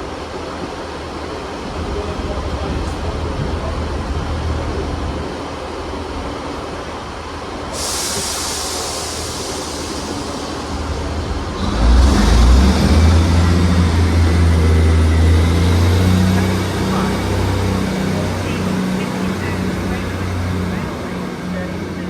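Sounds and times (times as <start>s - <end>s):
train diesel engines droning: 0.0s - 22.0s
air hiss: 7.7s - 12.5s.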